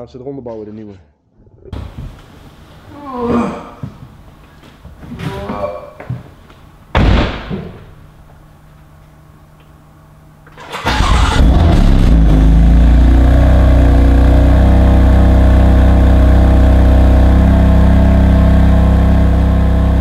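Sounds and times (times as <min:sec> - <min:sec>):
car engine starting and idling: 0:10.4 - 0:20.0.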